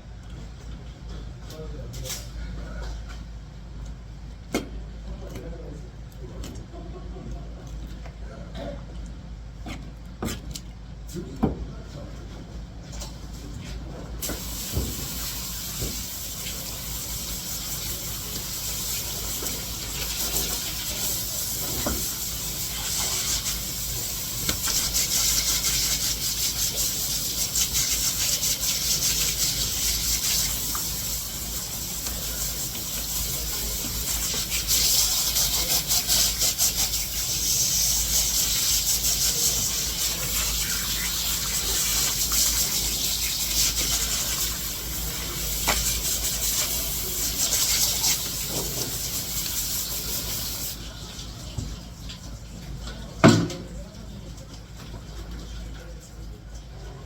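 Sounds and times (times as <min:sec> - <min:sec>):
water running from tap: 0:14.2 - 0:53.4.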